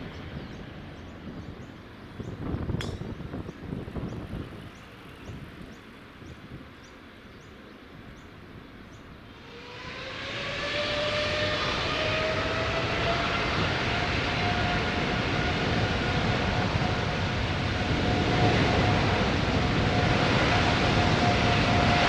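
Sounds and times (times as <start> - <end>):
jet engines spooling up: 9.3 - 22.0.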